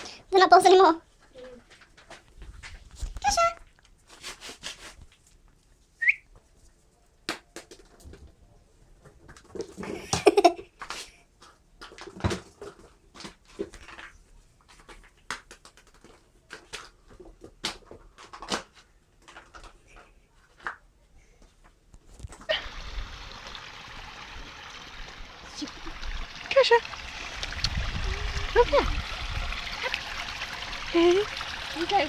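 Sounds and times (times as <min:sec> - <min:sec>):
plastic balls clicking and knocking: 0:07.3 - 0:08.2, 0:11.4 - 0:20.7.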